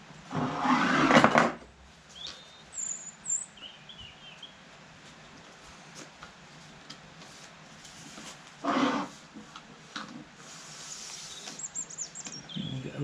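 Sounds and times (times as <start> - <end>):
rustling and scraping: 0.3 - 1.7, 5.0 - 12.3
high bird chirps: 2.1 - 4.6, 11.1 - 13.0.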